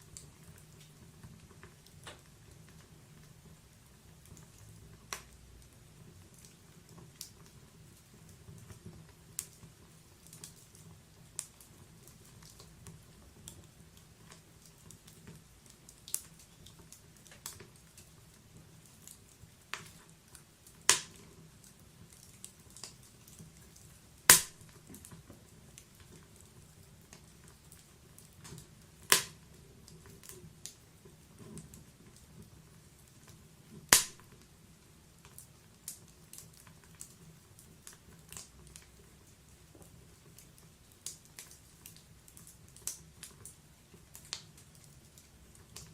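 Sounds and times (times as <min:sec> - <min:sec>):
faint low hiss: 0:00.0 - 0:45.9
wood fire crackling: 0:00.0 - 0:45.9
loud fire pops: 0:20.8 - 0:21.3, 0:24.2 - 0:25.1, 0:28.5 - 0:29.5, 0:33.6 - 0:34.4.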